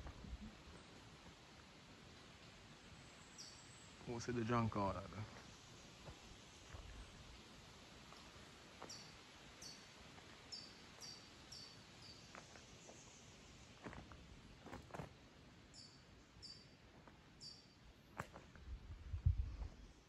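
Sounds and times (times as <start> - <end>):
small bird chirping: 3.0 - 3.9, 8.8 - 9.9, 10.5 - 13.2, 15.7 - 16.7, 17.4 - 17.8.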